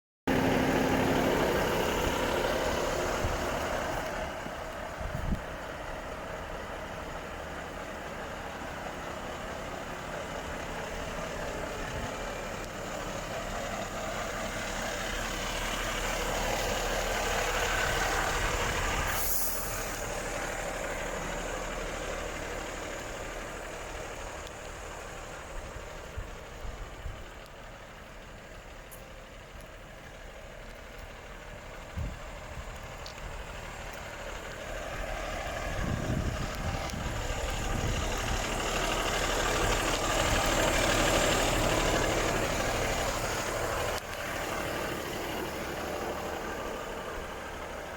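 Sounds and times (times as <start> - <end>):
truck diesel engine running: 0.3 - 47.9
air brake hiss: 19.1 - 20.2.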